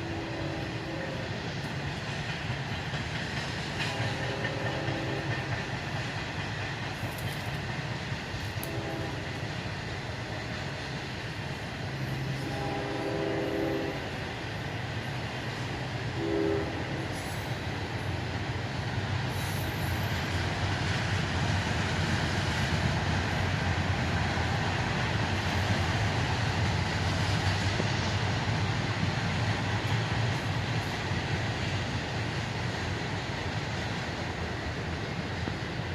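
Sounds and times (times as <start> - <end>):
train horn blasts: 0.0 - 1.7, 3.7 - 5.6, 8.5 - 9.4, 11.9 - 14.4, 15.5 - 18.1
train wheels on rails: 0.0 - 35.9.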